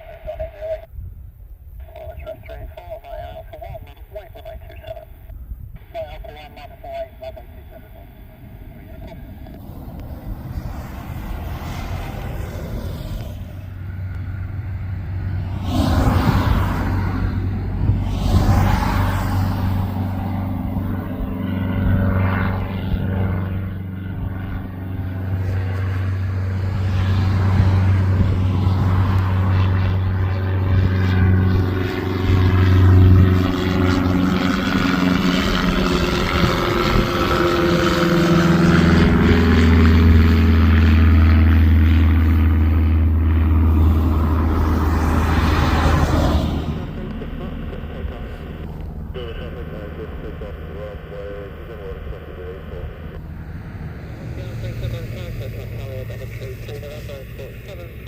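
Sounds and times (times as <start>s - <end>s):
aircraft engines passing low: 0.0s - 58.0s.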